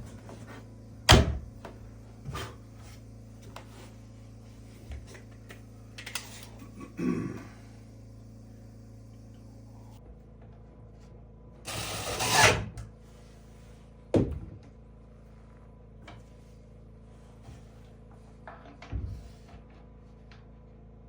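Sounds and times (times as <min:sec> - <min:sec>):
loud noisy tool burst: 0:11.7 - 0:12.7.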